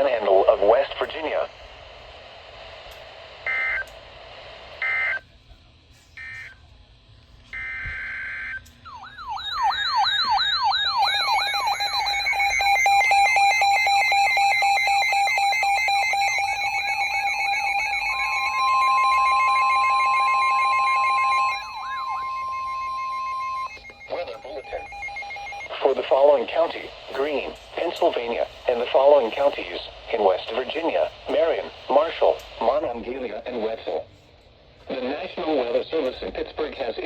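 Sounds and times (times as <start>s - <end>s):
warbling siren: 7.5s - 26.8s
steady alert tone: 15.9s - 26.5s.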